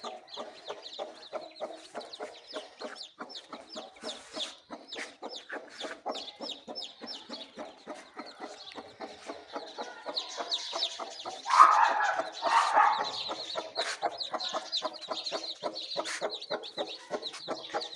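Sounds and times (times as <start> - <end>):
loud parakeet calls: 11.4 - 14.0.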